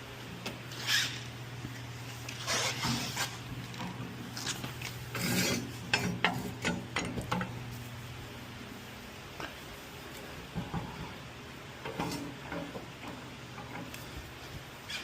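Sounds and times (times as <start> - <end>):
steady low hum: 0.0 - 15.0
metal scraping on metal: 5.1 - 6.4.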